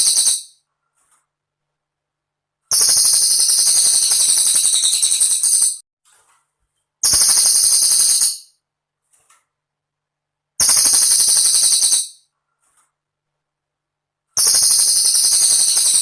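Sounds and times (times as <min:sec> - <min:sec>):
bird trilling high-pitched: 0:00.0 - 0:00.6, 0:02.7 - 0:05.8, 0:07.0 - 0:08.5, 0:10.6 - 0:12.2, 0:14.4 - 0:16.0.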